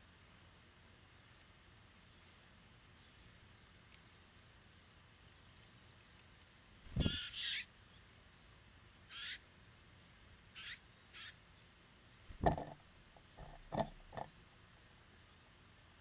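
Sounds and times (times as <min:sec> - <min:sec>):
short scratchy bursts: 0:06.9 - 0:07.6
dull knocks: 0:12.3 - 0:12.8.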